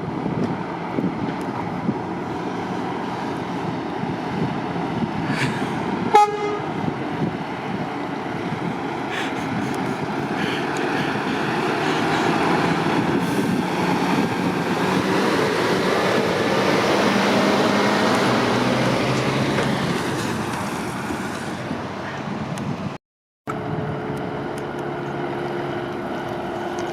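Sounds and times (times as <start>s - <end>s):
motorway traffic rushing: 0.0s - 26.9s
horn toot: 6.1s - 6.8s.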